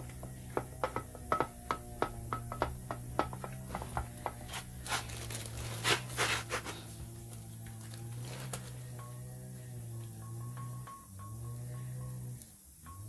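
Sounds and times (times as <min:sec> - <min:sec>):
background music: 0:00.0 - 0:05.6, 0:06.9 - 0:13.0
gloved hand rubbing and scraping: 0:03.5 - 0:08.9.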